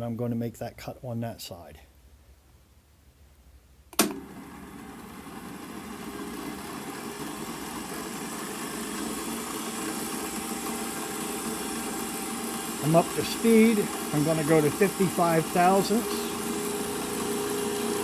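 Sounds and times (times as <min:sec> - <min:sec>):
switch click: 0:03.9 - 0:04.2
milling machine motor spinning up: 0:04.1 - 0:18.0.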